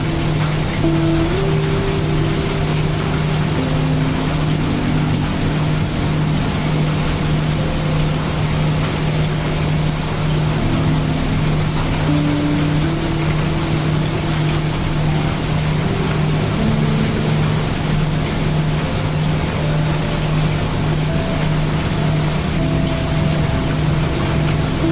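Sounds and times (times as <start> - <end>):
brown noise hiss: 0.0 - 24.9
heavy rain: 0.0 - 24.9
low steady hum: 0.0 - 24.9
soft held notes: 0.0 - 24.9.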